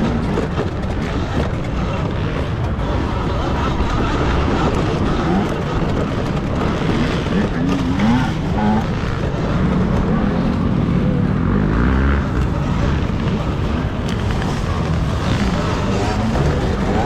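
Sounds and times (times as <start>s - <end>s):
dirt bike motors revving: 0.0s - 17.0s
wind and riding noise: 0.0s - 17.0s.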